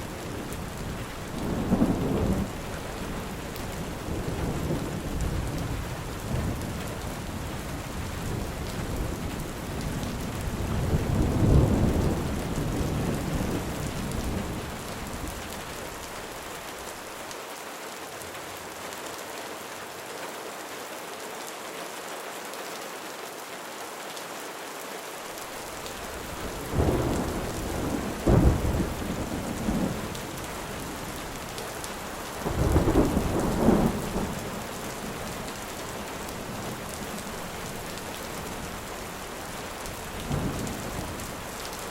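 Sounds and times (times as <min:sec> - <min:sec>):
thunder rumbling: 0:00.0 - 0:15.5, 0:25.6 - 0:39.0, 0:39.8 - 0:41.4
steady rain falling: 0:00.0 - 0:41.9
loud thunder claps: 0:26.3 - 0:30.4.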